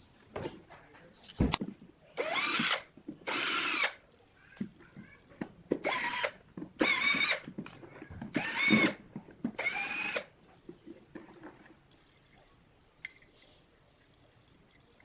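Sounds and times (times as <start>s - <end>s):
power drill whine: 2.2s - 4.0s, 5.8s - 7.4s, 8.3s - 9.0s, 9.6s - 10.3s.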